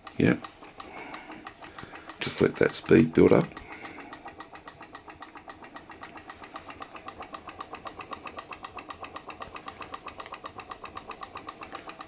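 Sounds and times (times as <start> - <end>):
stirling engine rhythmic ticking: 0.0 - 12.0.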